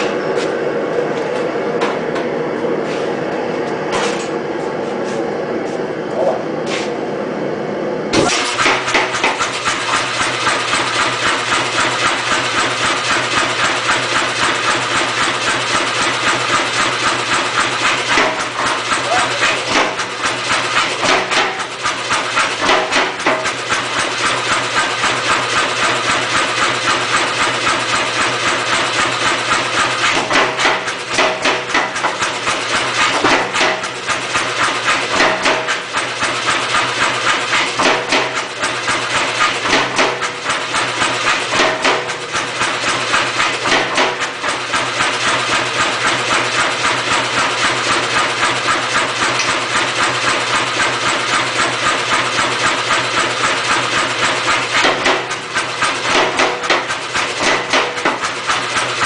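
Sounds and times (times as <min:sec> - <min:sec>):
power hammer striking steel: 0:08.1 - 0:59.0
motor humming: 0:17.3 - 0:21.0.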